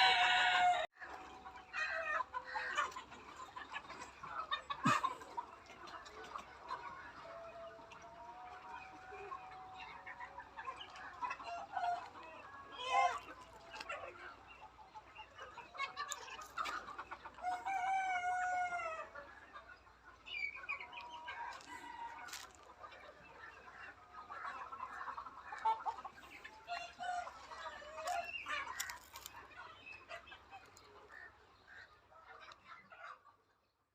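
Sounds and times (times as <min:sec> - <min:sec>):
rooster crowing: 0:00.0 - 0:00.9
chickens clucking: 0:00.0 - 0:33.8.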